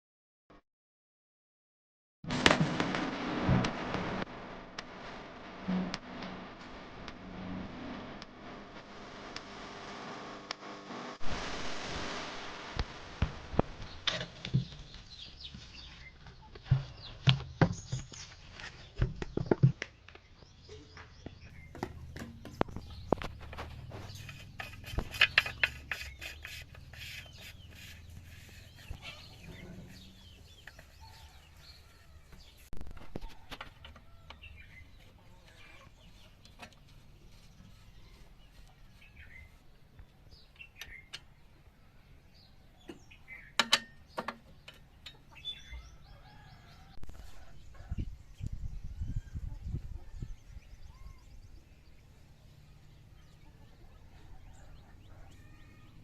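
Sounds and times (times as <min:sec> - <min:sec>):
chickens clucking: 0:21.7 - 0:39.1
sharp clicks and knocks: 0:43.6 - 0:45.3.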